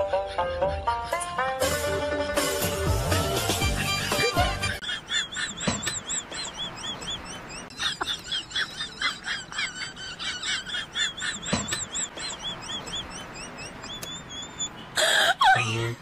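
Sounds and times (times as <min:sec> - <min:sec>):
small birds chirping: 0:04.8 - 0:16.0.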